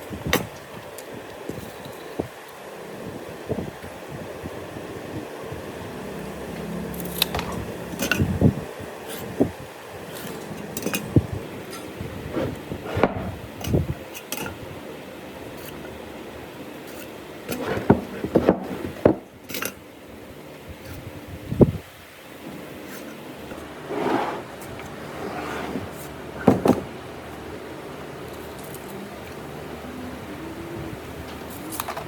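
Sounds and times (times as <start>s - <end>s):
knocks and clatter of hard objects: 17.5s - 19.8s, 25.7s - 26.9s.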